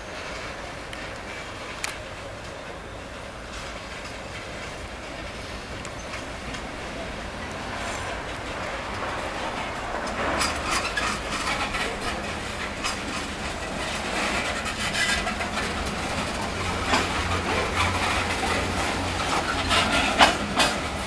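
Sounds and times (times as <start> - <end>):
low rumble of train: 0.0 - 21.0
wheels knocking over rail joints: 3.5 - 21.0.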